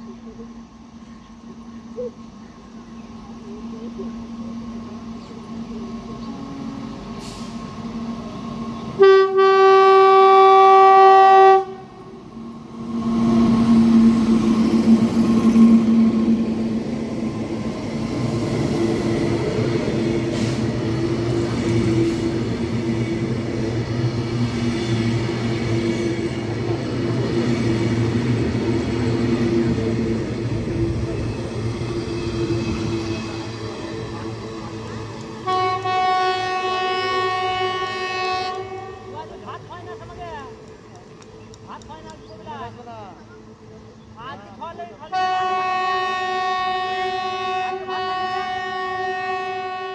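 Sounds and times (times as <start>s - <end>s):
wheels rumbling on rail: 0.0s - 49.9s
locomotive horn blast: 8.9s - 12.1s, 35.4s - 39.4s, 45.1s - 49.9s.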